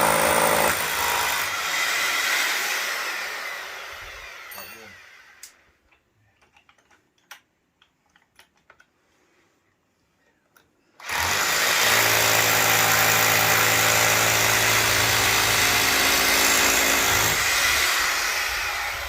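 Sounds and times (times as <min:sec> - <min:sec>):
power tool motor running: 0:11.0 - 0:19.0.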